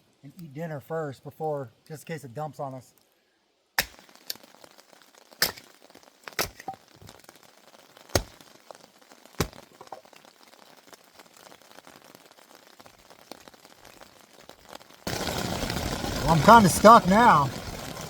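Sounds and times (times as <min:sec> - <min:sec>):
dry wood cracking: 0:03.8 - 0:18.0.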